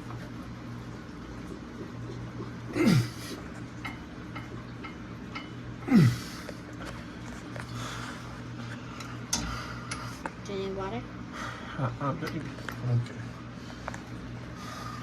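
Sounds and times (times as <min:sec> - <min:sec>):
man grunting with effort: 0:02.8 - 0:03.4, 0:05.8 - 0:06.4.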